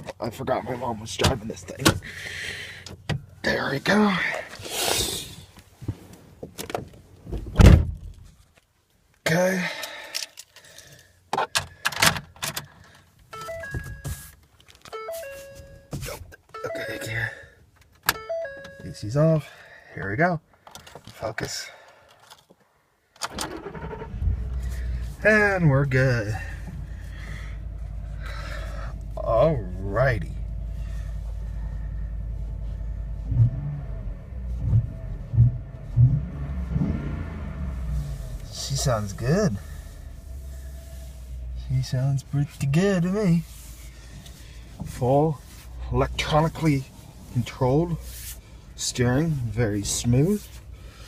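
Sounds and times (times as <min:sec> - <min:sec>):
dashboard chime: 0:13.4 - 0:14.2, 0:14.9 - 0:16.0, 0:16.6 - 0:17.4, 0:18.2 - 0:19.1
pickup engine idling: 0:23.7 - 0:33.3, 0:37.3 - 0:41.7.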